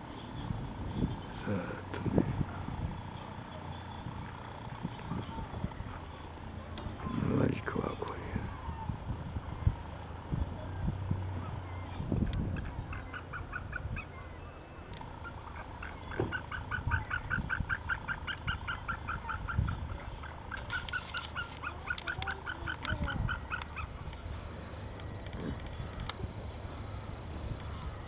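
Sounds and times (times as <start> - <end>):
low wind rumble: 0.0 - 28.0
waterfowl honking: 15.1 - 28.0.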